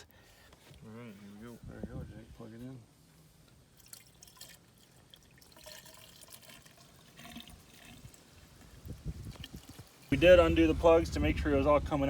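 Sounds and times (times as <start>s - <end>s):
liquid trickling and dripping: 3.7s - 10.2s.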